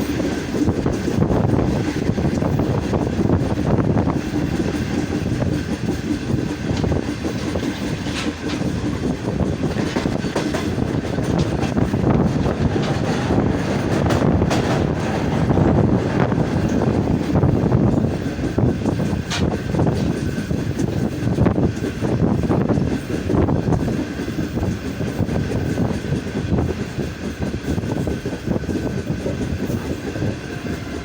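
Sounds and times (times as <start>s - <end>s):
train rumbling on rails: 0.0s - 31.0s
wheels clattering over rail joints: 0.0s - 31.0s.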